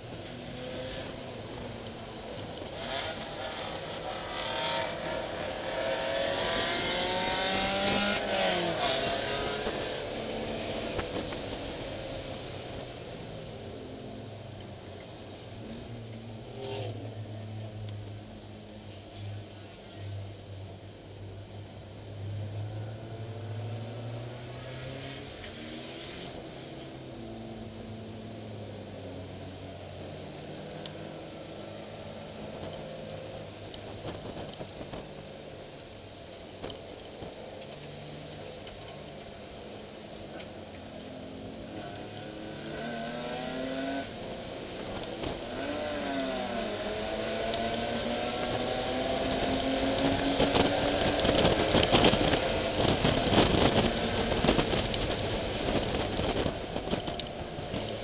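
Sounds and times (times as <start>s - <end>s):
car engine revving: 0.0s - 13.6s, 40.3s - 58.0s
wind and road noise: 0.0s - 58.0s.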